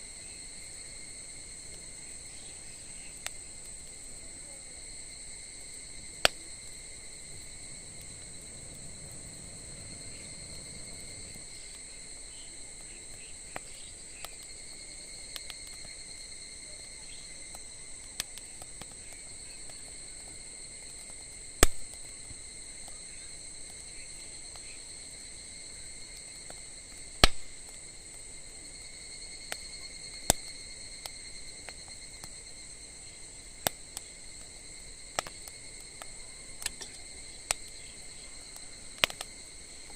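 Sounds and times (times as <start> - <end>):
insects chirring: 0.0 - 39.9
wood fire crackling: 0.0 - 39.9
sharp fire pops: 5.8 - 14.6, 20.9 - 22.2, 26.2 - 28.6, 29.5 - 32.4, 33.6 - 39.9.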